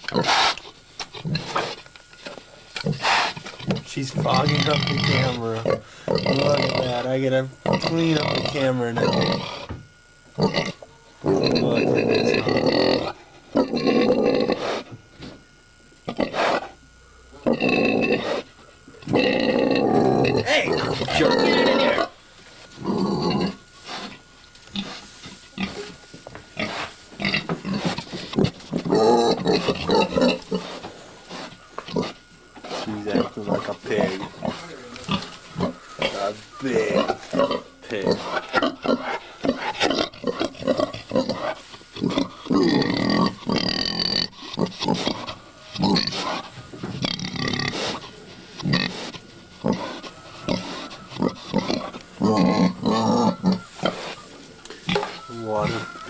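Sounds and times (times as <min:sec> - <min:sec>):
pig grunting: 0:00.0 - 0:01.8, 0:02.8 - 0:15.4, 0:16.0 - 0:56.0
sow making short calls: 0:49.8 - 0:51.9, 0:52.8 - 0:56.0.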